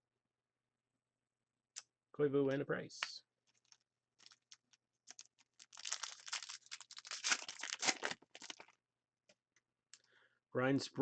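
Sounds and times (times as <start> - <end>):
wrapper tearing and crinkling: 3.5 - 8.8.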